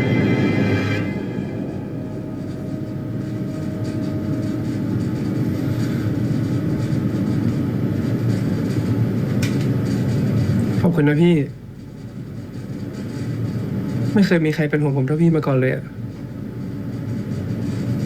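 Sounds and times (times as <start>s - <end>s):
low rumble: 0.0s - 9.2s
faint hum: 0.0s - 18.0s.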